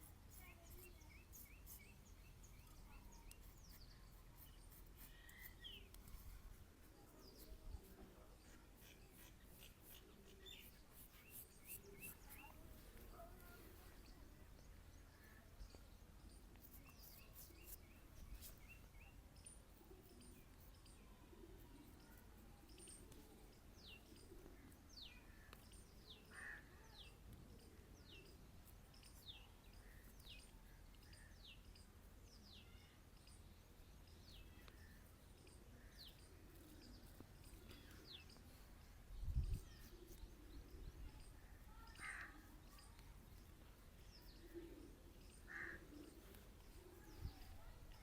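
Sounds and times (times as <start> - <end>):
background hiss: 0.0 - 26.5.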